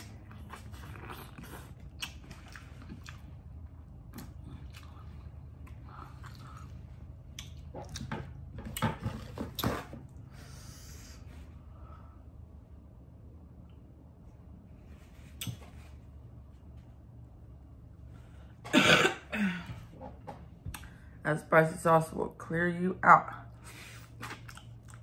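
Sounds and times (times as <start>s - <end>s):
chewing and lip smacking: 0.0s - 8.4s, 24.2s - 25.0s.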